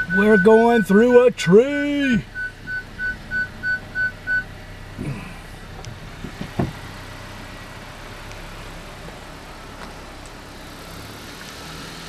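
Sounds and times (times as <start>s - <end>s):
parking sensor short beeps: 0.0s - 4.5s
car engine running slowly: 0.0s - 12.0s.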